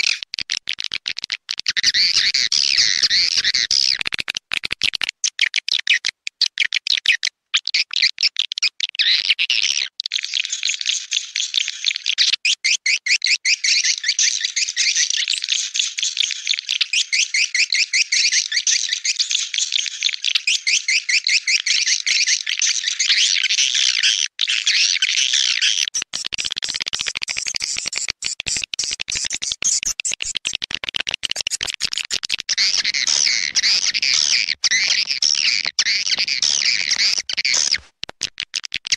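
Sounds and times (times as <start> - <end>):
swiftlets twittering: 31.2 - 37.9.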